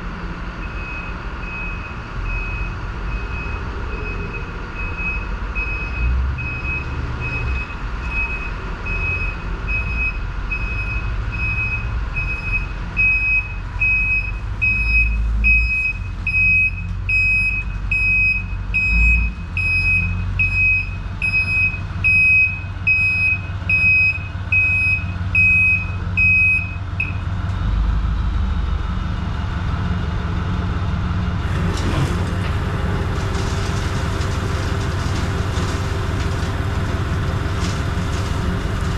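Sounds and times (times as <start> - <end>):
diesel engine running: 0.0 - 38.9
reversing alarm beeping: 0.6 - 27.2.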